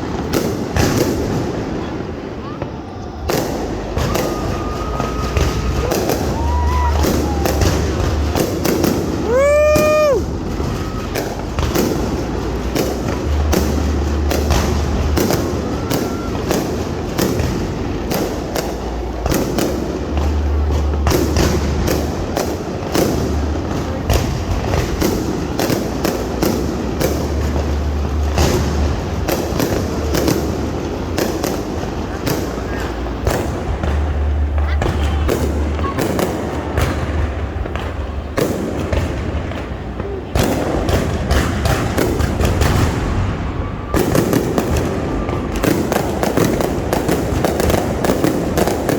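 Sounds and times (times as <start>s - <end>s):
fireworks bangs: 0.0s - 48.9s
rising firework whistle: 1.8s - 23.4s, 41.5s - 48.7s.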